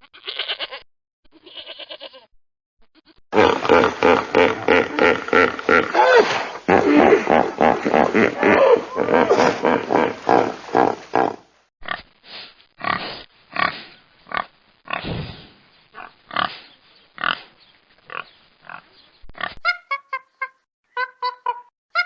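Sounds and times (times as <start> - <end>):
pigs grunting: 3.4 - 12.0.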